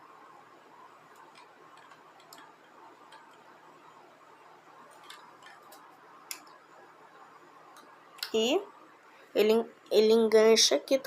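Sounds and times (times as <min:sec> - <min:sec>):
low steady room hiss: 0:00.0 - 0:11.0.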